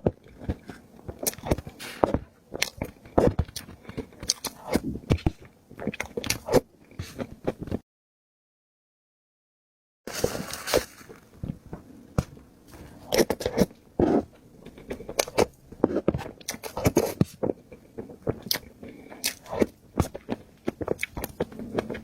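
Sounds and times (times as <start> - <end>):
person biting and chewing food: 0.0 - 7.8, 10.1 - 22.0.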